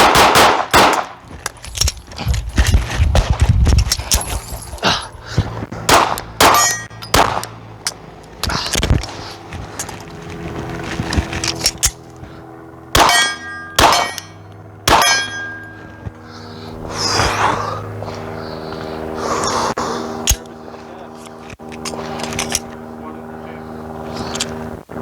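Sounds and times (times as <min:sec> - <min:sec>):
pistol shots: 0:00.0 - 0:01.2, 0:05.9 - 0:07.6, 0:12.9 - 0:15.7
steel targets clanging: 0:06.4 - 0:08.0, 0:13.0 - 0:16.1.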